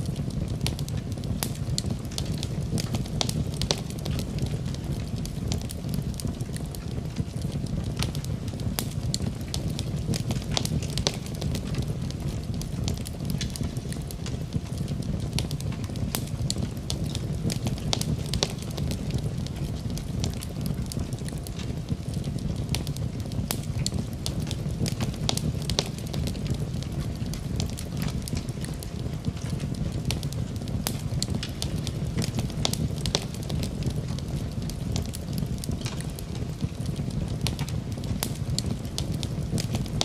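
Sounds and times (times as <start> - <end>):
fire crackling and popping: 0.0 - 40.0
low rush of flames: 0.0 - 40.0.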